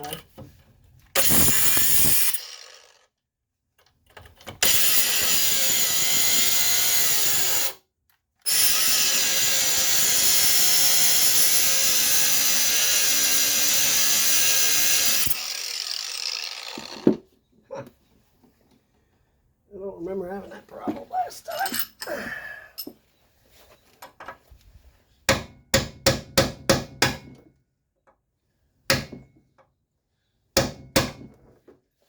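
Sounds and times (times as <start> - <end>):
power cutting tool cutting bolt: 1.2 - 3.1, 4.6 - 7.8, 8.5 - 17.2.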